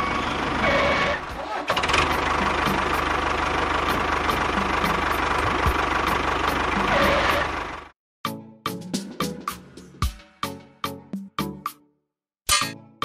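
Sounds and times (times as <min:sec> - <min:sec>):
tractor engine running: 0:00.0 - 0:08.0
music: 0:02.0 - 0:03.2, 0:03.8 - 0:07.5, 0:08.2 - 0:13.0.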